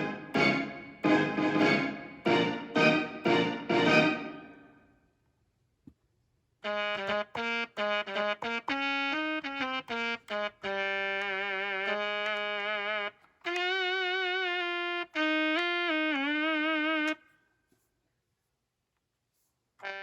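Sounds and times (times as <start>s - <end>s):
keyboard melody with vibrato: 0.0s - 4.8s
keyboard struck sound: 0.0s - 4.8s.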